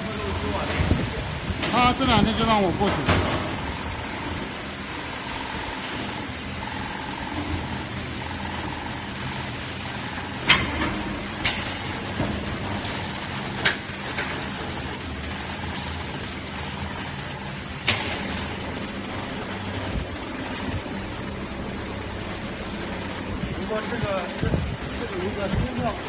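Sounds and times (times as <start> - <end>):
factory machinery running: 0.0 - 26.0.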